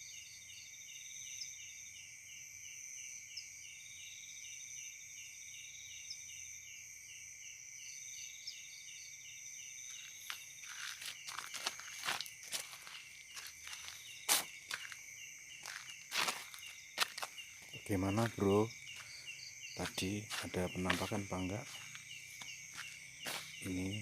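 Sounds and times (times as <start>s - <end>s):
insects trilling: 0.0s - 24.0s
short insect chirps: 7.9s - 24.0s
footsteps: 10.0s - 24.0s.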